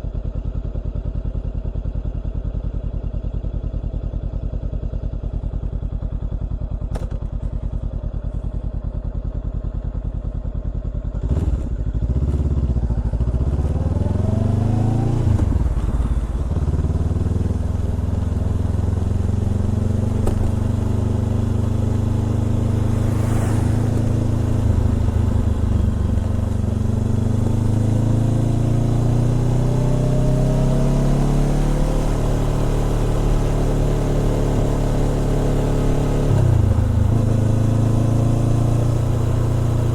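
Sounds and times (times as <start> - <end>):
motorcycle engine revving through gears: 11.0 - 39.9.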